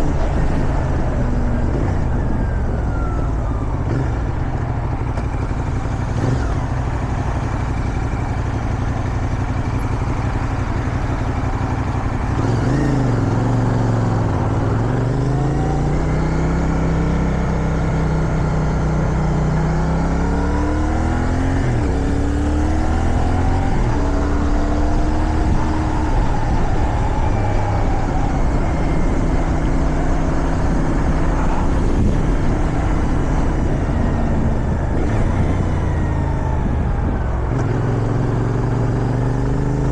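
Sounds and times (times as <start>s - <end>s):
motorcycle engine accelerating: 0.0s - 39.9s
wind rushing over microphone: 21.6s - 37.8s.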